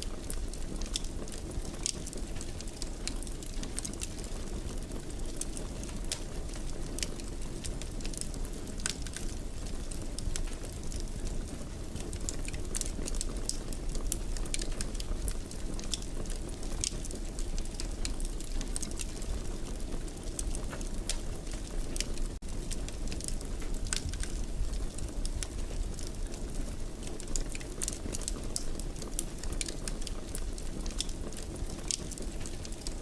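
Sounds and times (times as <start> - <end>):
fire crackling and popping: 0.0 - 33.0
low rumble of flames: 0.0 - 33.0.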